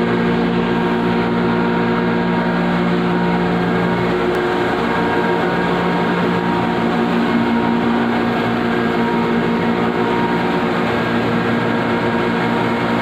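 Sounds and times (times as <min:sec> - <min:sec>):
grinding machinery humming: 0:00.0 - 0:13.0.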